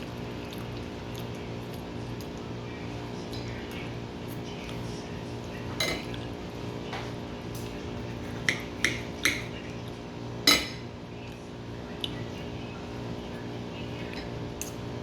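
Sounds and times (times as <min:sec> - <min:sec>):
fork clinking on a plate: 0:10.5 - 0:10.9.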